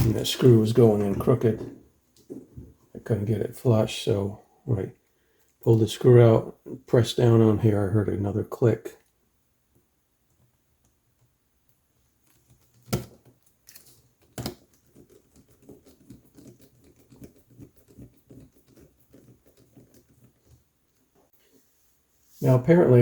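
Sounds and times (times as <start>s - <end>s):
laptop parts tapping and rattling: 12.2s - 21.2s.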